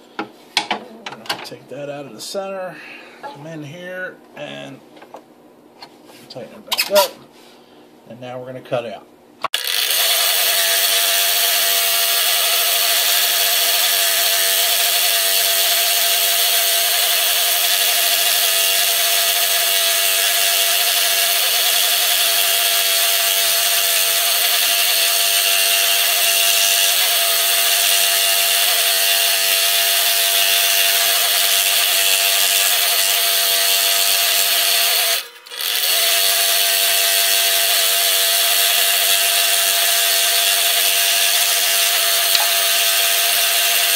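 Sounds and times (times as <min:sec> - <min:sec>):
scroll saw cutting wood: 0:09.5 - 0:43.9.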